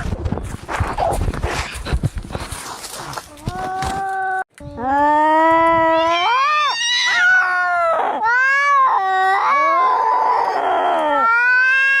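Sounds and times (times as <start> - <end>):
cats yowling in a fight: 5.8 - 12.0.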